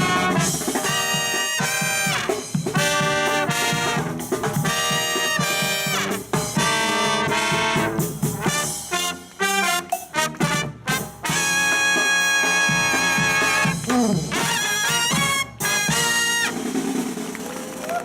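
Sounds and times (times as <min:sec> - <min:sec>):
brass band playing: 0:00.0 - 0:17.7.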